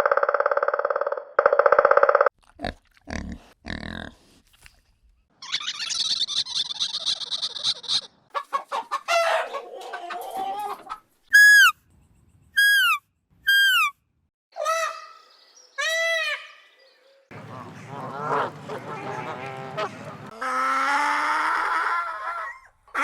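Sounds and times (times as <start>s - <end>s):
chickens clucking and crowing: 8.3s - 11.1s, 17.3s - 21.8s
goose honking: 17.3s - 20.4s.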